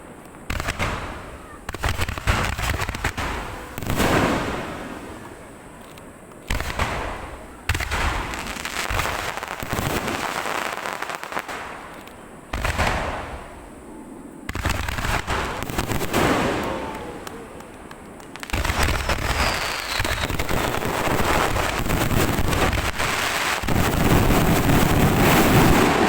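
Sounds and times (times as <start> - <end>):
firework crackling tail: 0.0 - 26.0
firework shells booming: 6.3 - 13.8, 14.5 - 26.0.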